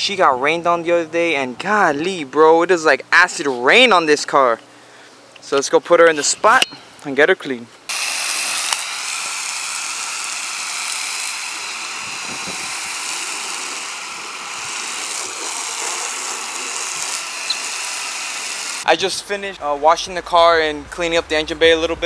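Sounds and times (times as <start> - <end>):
water spraying onto car: 9.6 - 18.9.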